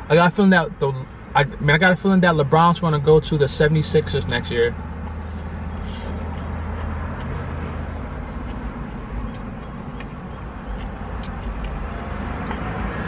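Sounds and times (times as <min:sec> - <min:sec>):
chewing noodles: 0:05.4 - 0:12.8.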